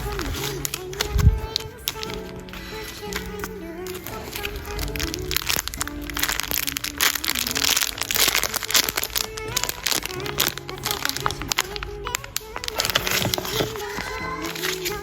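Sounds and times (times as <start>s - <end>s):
background music with simple melody: 0.0s - 15.0s
packaging crinkling: 0.0s - 15.0s.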